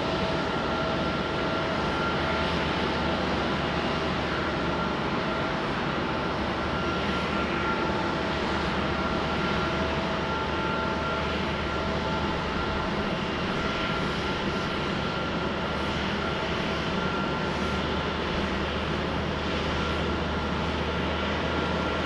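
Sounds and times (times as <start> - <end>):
jet airliner engines running: 0.0 - 22.0.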